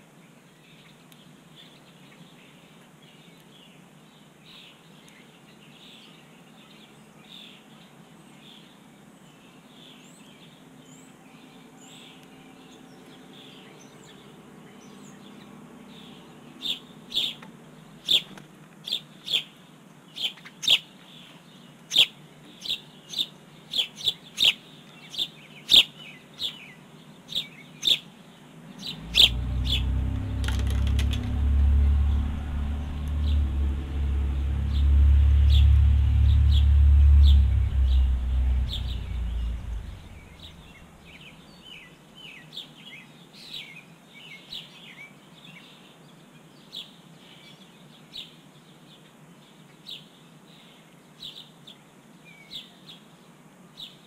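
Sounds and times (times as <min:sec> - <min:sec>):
small birds chirping: 0:00.0 - 0:53.2
low rumble: 0:28.6 - 0:41.7.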